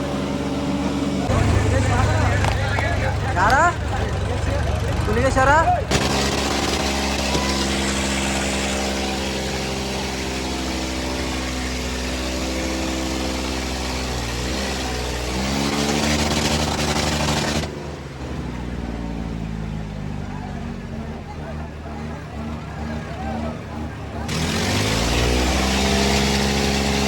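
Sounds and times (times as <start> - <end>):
loud rushing noise: 0.0 - 17.8
tractor diesel engines under load: 0.0 - 27.0.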